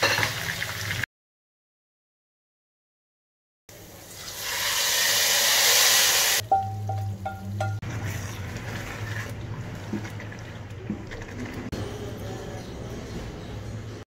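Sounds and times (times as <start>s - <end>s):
hot oil sizzling: 0.0s - 1.0s, 3.7s - 7.8s.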